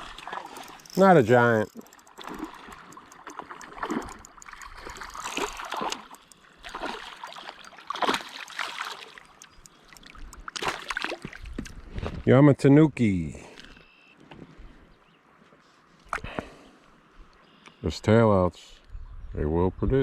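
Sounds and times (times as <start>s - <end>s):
river water splashing: 0.0s - 11.6s
trickle of current: 0.0s - 11.8s.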